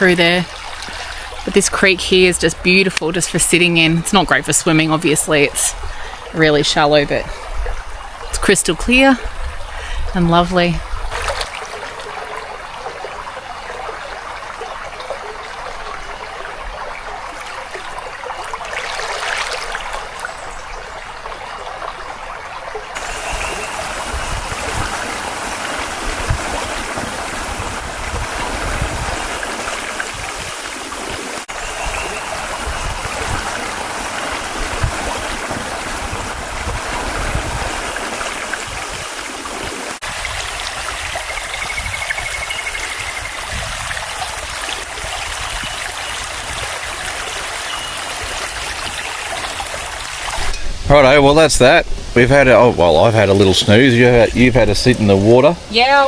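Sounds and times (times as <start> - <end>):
creek babbling over stones: 0.0 - 50.5.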